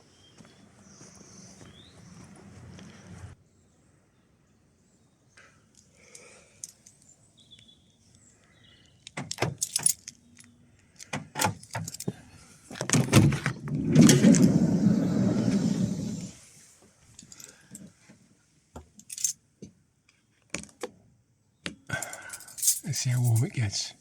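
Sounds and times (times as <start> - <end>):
keys jangling: 9.0 - 12.1, 19.0 - 19.4, 21.9 - 23.5
rough rumbling noise: 13.5 - 16.5.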